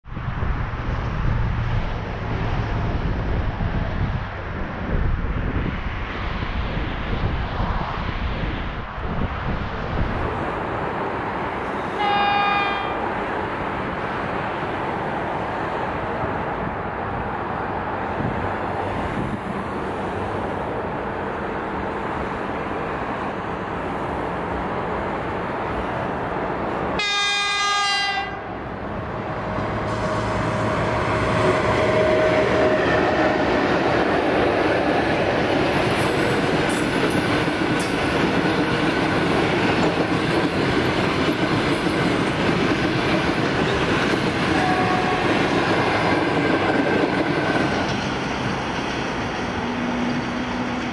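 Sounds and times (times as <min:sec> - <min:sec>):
train running on rails: 0:00.1 - 0:50.9
locomotive horn blasts: 0:11.9 - 0:13.0, 0:27.0 - 0:28.6, 0:29.8 - 0:32.9, 0:44.5 - 0:45.4.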